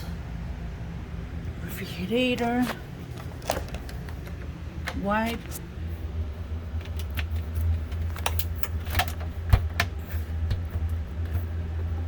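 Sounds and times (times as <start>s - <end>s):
steady low hum: 0.0s - 12.0s
clicks and knocks of handling: 2.4s - 5.6s, 6.8s - 12.0s.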